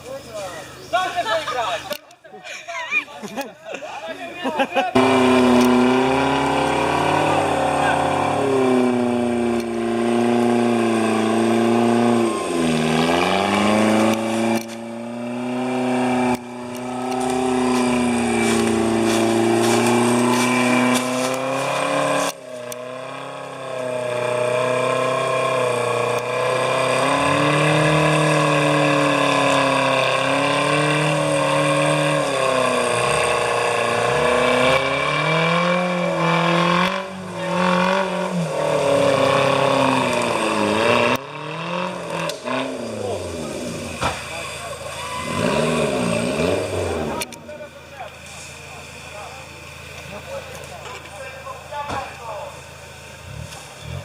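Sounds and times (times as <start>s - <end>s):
off-road vehicle engine revving: 4.5s - 54.0s.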